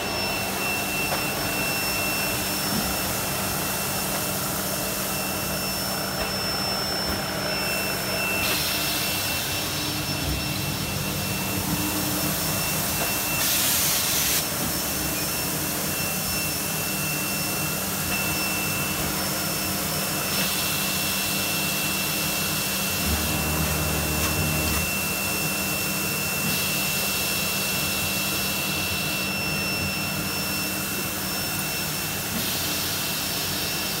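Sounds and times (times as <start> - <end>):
thin high whine: 0.0 - 26.6
vacuum blower air rush: 0.0 - 34.0.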